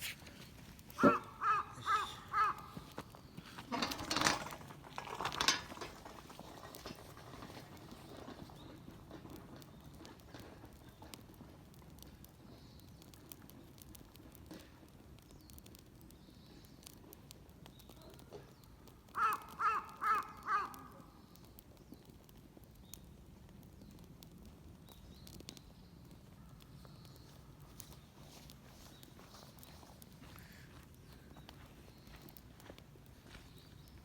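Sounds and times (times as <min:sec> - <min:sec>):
crow cawing: 0:01.0 - 0:03.0, 0:19.1 - 0:21.0.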